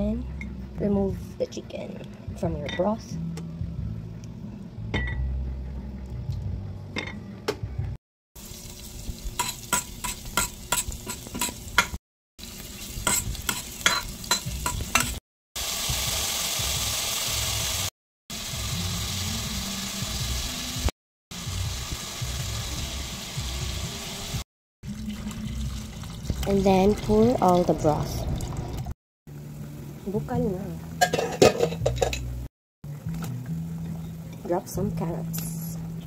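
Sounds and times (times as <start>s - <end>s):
onion and garlic sizzling: 8.4s - 27.3s
metal utensils scraping pot: 31.0s - 32.3s.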